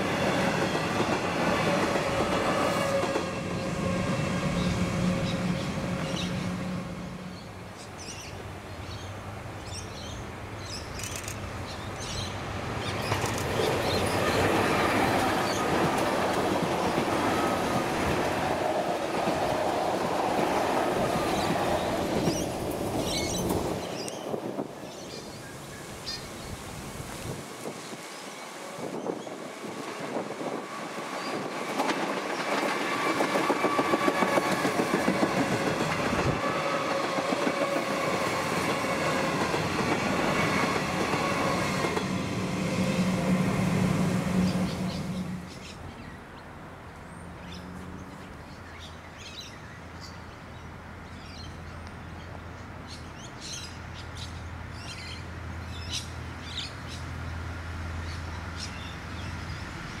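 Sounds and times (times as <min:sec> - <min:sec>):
diesel railcars droning: 0:00.0 - 0:07.8, 0:32.7 - 0:45.7
electric train passing: 0:00.0 - 0:48.0, 0:54.4 - 1:00.0.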